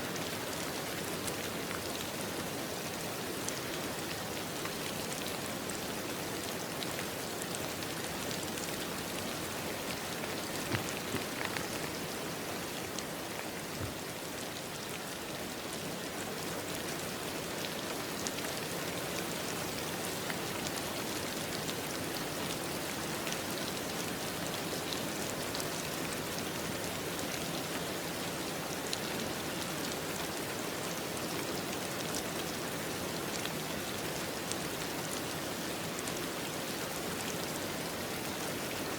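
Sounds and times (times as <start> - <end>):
steady rain: 0.0 - 38.9
drops pattering on a surface: 10.3 - 12.0.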